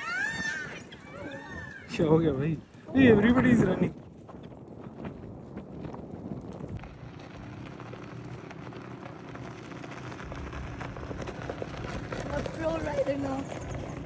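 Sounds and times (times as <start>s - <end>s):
wind buffeting microphone: 0.0s - 14.0s
low steady rumble: 5.3s - 14.0s.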